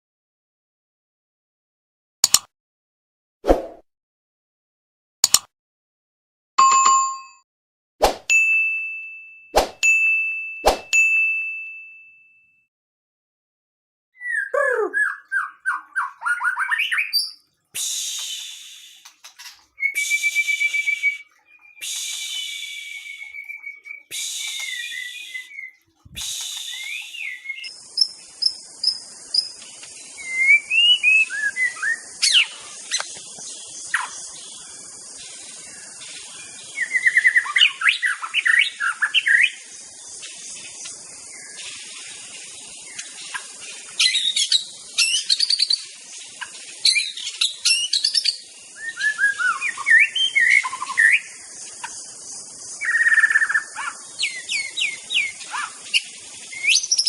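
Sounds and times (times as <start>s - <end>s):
songbird whistling and trilling: 14.2s - 33.0s, 36.4s - 39.6s, 44.0s - 45.9s, 46.8s - 51.4s, 52.7s - 57.0s
steady high hiss: 17.8s - 21.2s, 21.8s - 23.3s, 24.1s - 25.5s, 26.1s - 57.0s.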